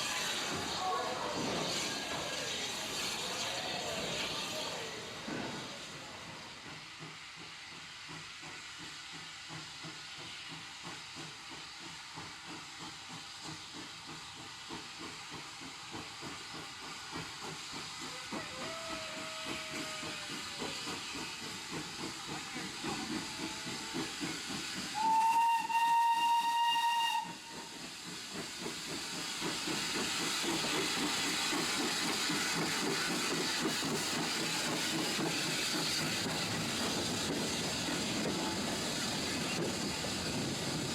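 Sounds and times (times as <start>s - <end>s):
steam locomotive exhaust beat: 0.0s - 40.9s
steam locomotive whistle: 24.9s - 27.8s.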